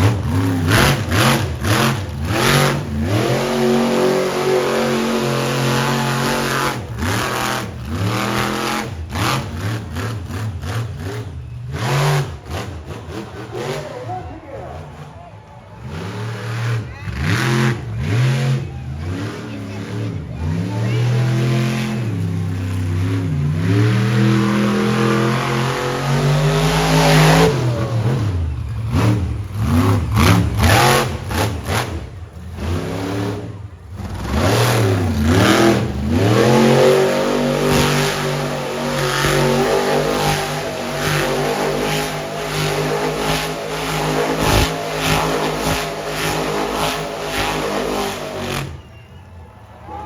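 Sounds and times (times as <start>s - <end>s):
monster truck engine revving: 0.0s - 50.0s.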